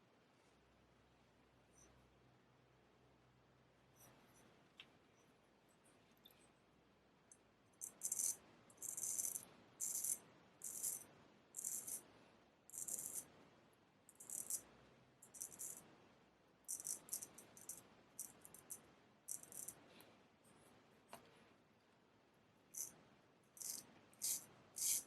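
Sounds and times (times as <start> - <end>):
razor blade scraping: 7.8 - 11.0, 11.6 - 12.0, 12.8 - 13.3, 16.7 - 19.8, 22.7 - 23.0, 23.6 - 25.0.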